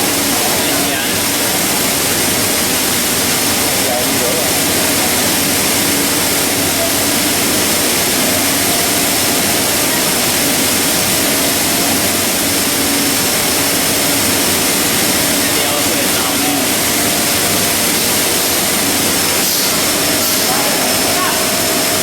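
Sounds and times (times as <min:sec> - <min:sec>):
machinery running: 0:00.0 - 0:22.0.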